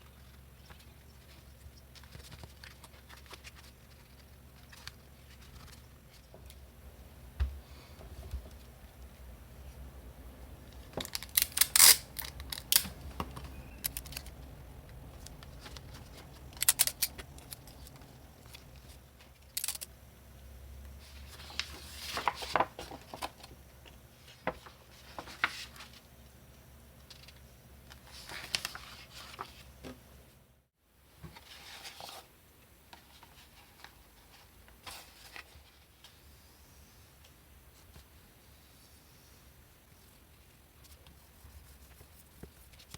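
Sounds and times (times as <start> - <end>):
paper and card rustling: 0.0 - 6.6, 15.1 - 19.8, 21.1 - 23.6, 24.2 - 26.1, 27.1 - 29.7.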